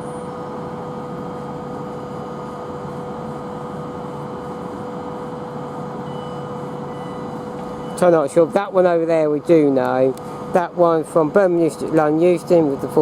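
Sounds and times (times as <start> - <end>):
electric train humming: 0.0 - 11.5.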